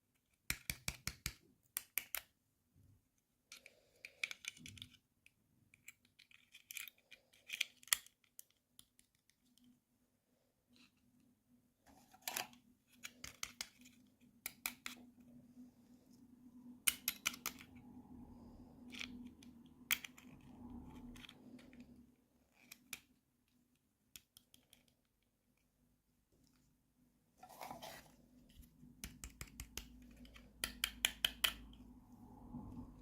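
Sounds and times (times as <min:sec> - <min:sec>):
faint steady hum: 0:25.2 - 0:33.0.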